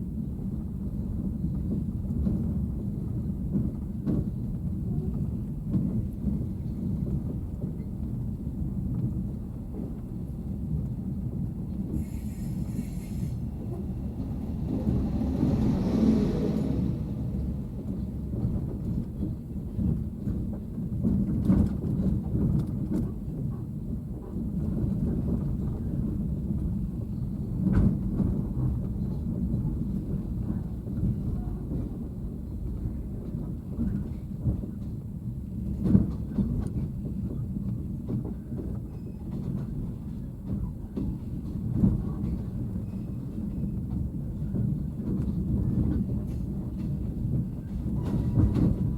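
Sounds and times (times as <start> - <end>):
train running rumble: 0.0 - 48.9
train knocks and jolts: 35.7 - 48.9.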